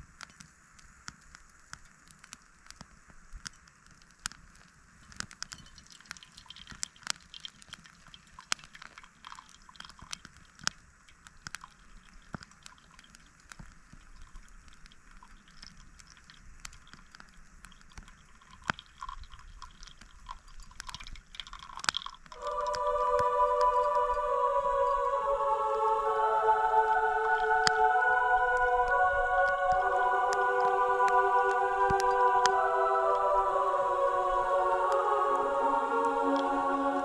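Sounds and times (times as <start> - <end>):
campfire crackling and popping: 0.2 - 23.0
faint hiss: 22.3 - 37.0.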